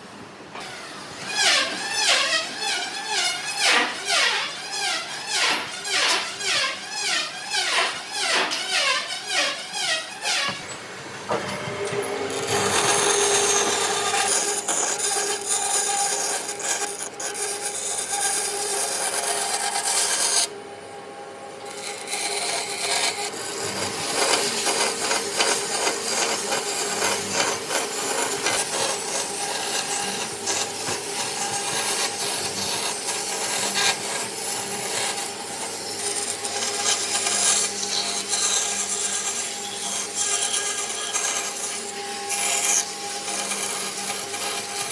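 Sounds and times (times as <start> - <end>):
hand tool scraping wood: 11.3 - 20.5, 21.6 - 44.9.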